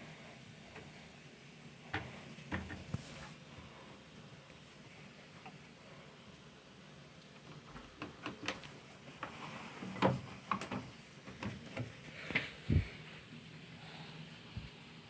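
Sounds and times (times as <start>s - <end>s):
washing machine clicks and knocks: 1.9s - 2.9s.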